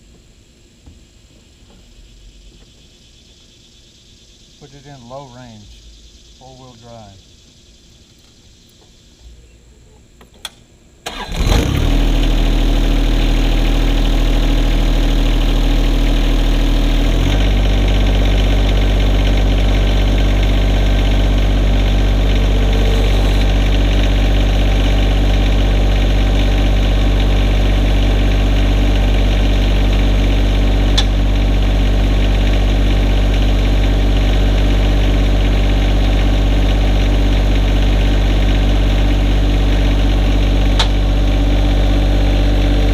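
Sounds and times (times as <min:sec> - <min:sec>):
diesel engine cranking and running: 0:11.0 - 0:42.9.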